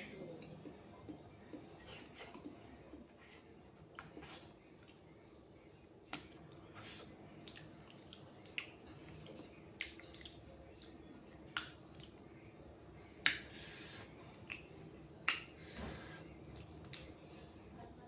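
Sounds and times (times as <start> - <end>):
wet lip-smacks and chewing: 6.0 - 12.3, 13.2 - 15.7, 16.4 - 17.3.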